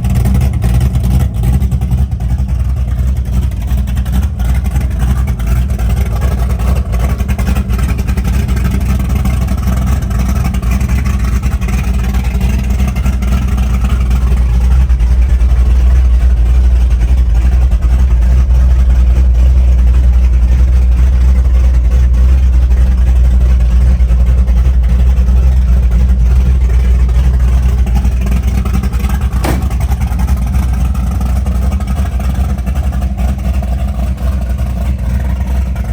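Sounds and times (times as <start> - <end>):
engine rumbling: 0.0 - 35.9.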